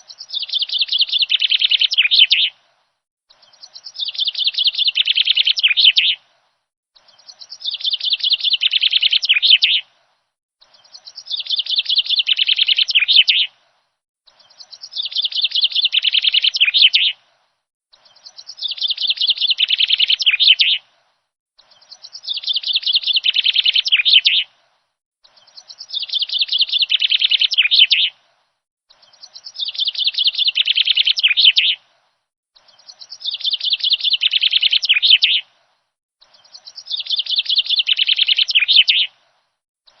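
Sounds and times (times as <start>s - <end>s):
bird chirping trill: 0.0s - 2.5s, 3.3s - 6.2s, 7.0s - 9.8s, 10.6s - 13.5s, 14.3s - 17.2s, 17.9s - 20.8s, 21.6s - 24.5s, 25.2s - 28.1s, 28.9s - 31.8s, 32.6s - 35.4s, 36.2s - 39.1s.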